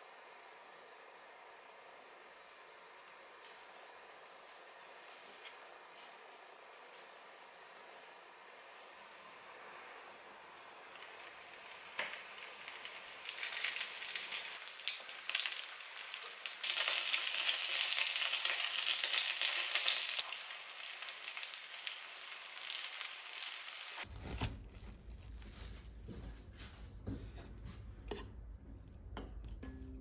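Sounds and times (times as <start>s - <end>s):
spring rolls sizzling in oil: 10.8s - 24.1s
low hum: 24.7s - 30.0s.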